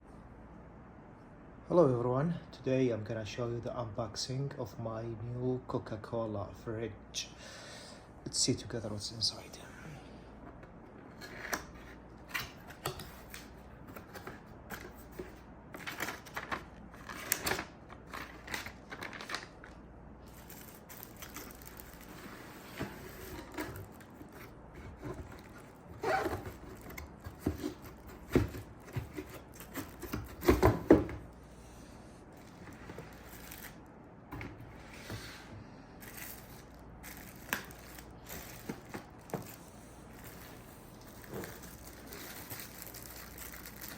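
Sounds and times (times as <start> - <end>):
packaging rustling and crinkling: 11.2 - 31.1, 32.4 - 33.9, 36.0 - 43.9.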